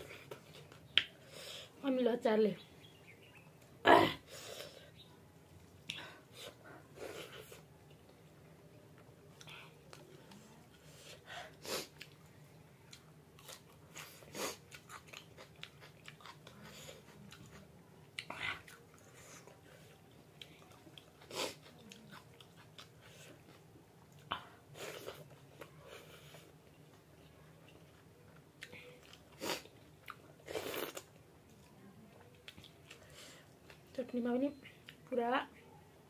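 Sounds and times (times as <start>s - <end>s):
person chewing food: 0.0s - 1.3s, 4.6s - 34.0s.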